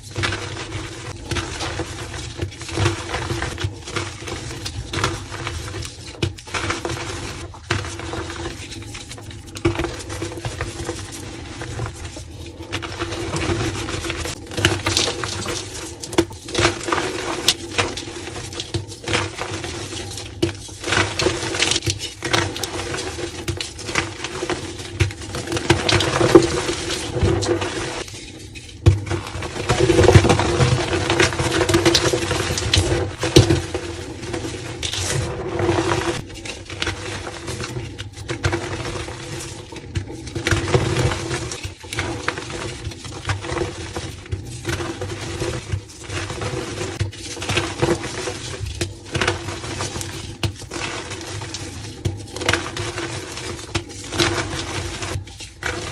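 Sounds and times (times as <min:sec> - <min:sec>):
chalk crunching and crumbling: 0:00.0 - 0:55.9.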